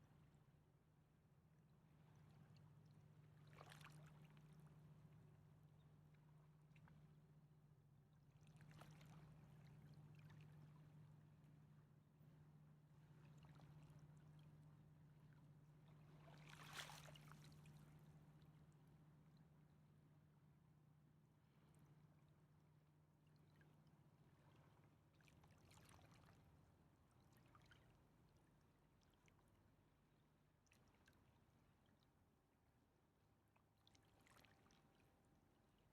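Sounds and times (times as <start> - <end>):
river water lapping: 16.0 - 18.0, 34.0 - 35.1.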